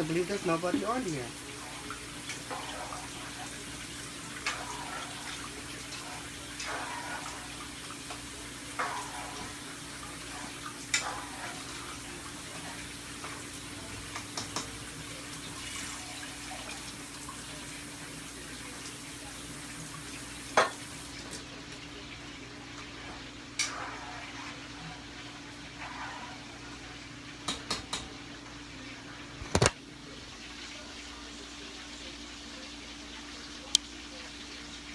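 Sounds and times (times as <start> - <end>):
rice sizzling in a pot: 0.0 - 34.9.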